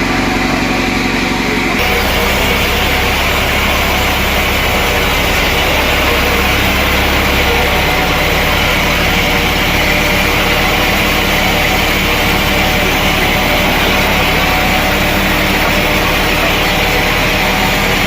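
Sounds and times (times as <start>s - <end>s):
sawmill machinery drone: 0.0s - 18.0s.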